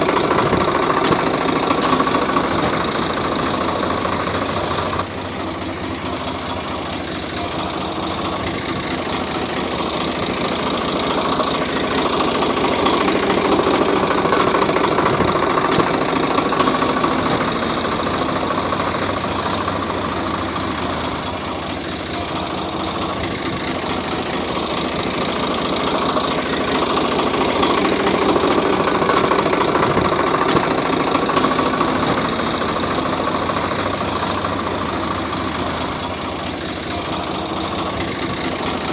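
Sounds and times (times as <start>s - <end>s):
engine idling with knocking: 0.0s - 38.9s.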